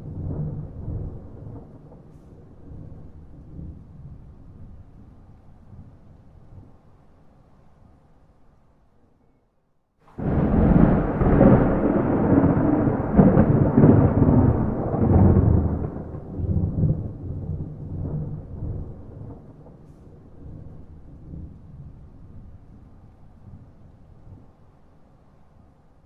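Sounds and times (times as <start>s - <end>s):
thunder rumbling: 0.0s - 5.1s, 10.1s - 23.7s.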